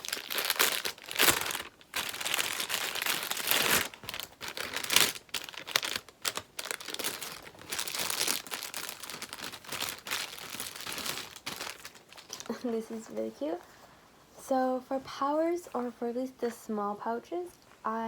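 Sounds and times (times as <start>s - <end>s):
packaging crinkling and rustling: 0.0s - 13.6s.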